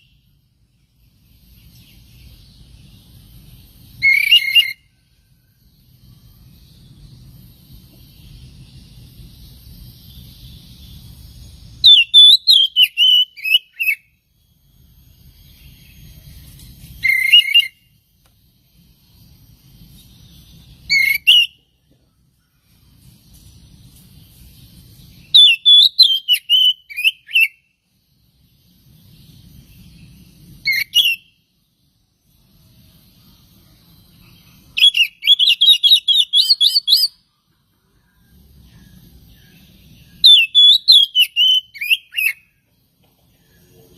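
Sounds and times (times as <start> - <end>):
bird whistling phrases: 4.0 - 4.9, 11.8 - 14.1, 17.0 - 17.8, 20.9 - 21.6, 25.3 - 27.6, 30.6 - 31.4, 34.8 - 37.2, 40.2 - 42.5.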